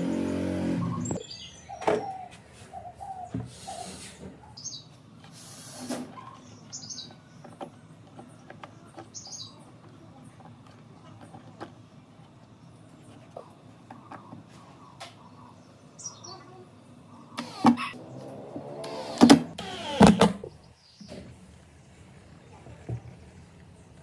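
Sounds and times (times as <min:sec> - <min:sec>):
small birds chirping: 0:00.0 - 0:18.3, 0:20.4 - 0:24.0.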